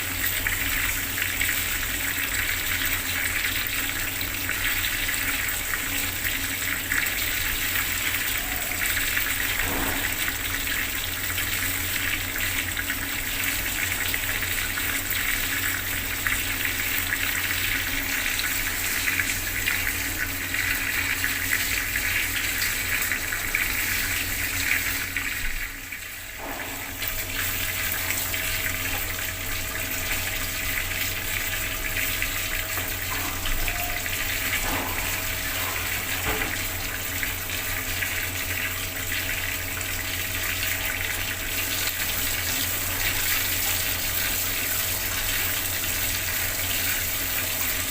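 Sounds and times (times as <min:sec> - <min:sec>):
water tap running: 0:00.0 - 0:47.9.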